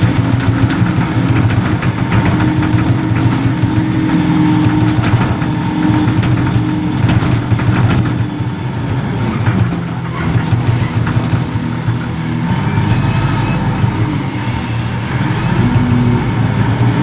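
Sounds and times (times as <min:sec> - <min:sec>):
light clanks and knocks: 0:00.0 - 0:13.3
diesel engine running: 0:00.0 - 0:17.0.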